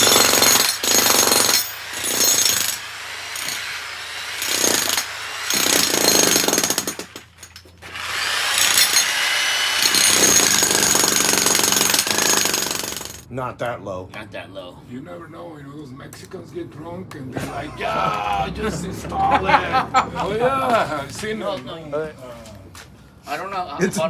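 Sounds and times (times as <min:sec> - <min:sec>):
jackhammer breaking concrete: 0:00.0 - 0:13.3.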